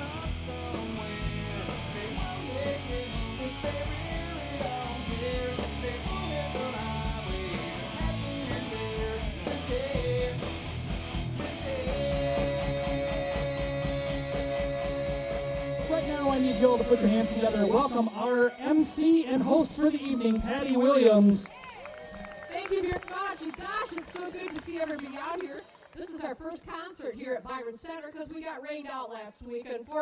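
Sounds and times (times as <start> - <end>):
rock music: 0.0 - 21.4.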